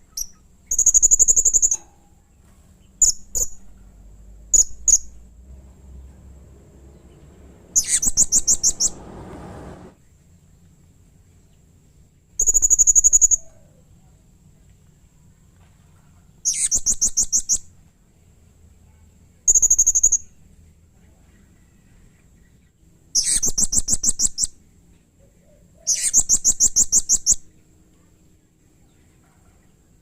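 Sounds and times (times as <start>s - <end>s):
parrot chirping rapidly: 7.7s - 9.0s, 16.4s - 17.6s.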